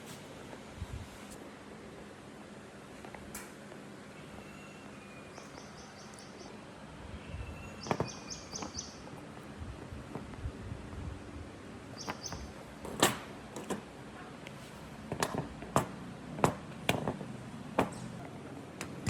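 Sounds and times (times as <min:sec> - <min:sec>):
bird chirp: 0:04.2 - 0:09.2, 0:11.9 - 0:12.6
sharp knocks and taps: 0:15.1 - 0:18.2.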